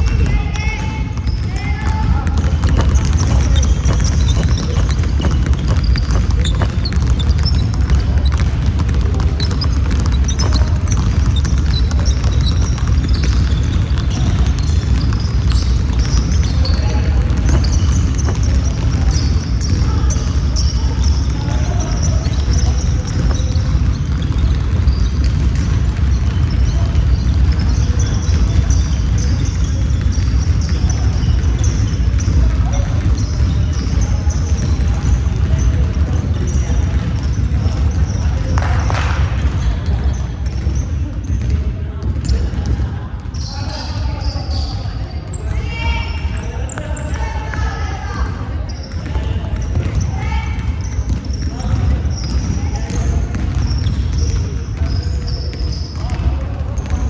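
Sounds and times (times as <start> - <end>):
players calling out: 0.0 - 24.4
basketball bouncing on court: 0.0 - 57.0.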